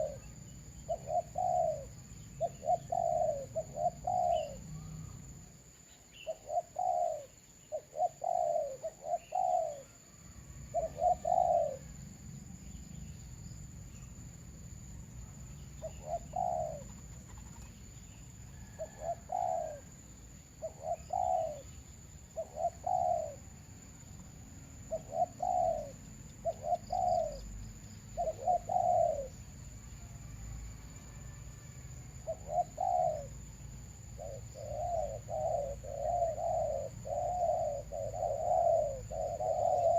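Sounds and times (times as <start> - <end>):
doves cooing: 0.0 - 5.3, 6.2 - 10.0, 10.7 - 12.0, 15.8 - 17.8, 18.5 - 20.0, 20.6 - 27.6, 28.2 - 29.4, 32.2 - 33.5, 34.1 - 39.9.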